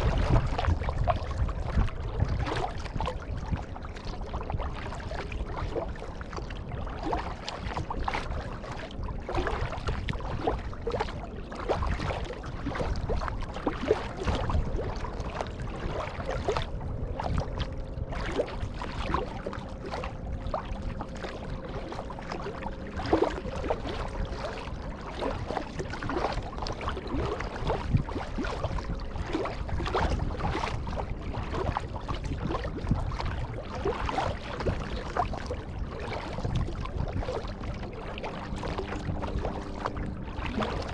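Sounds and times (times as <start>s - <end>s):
low steady rumble: 0.0s - 40.9s
paddle splashing water: 0.0s - 40.9s.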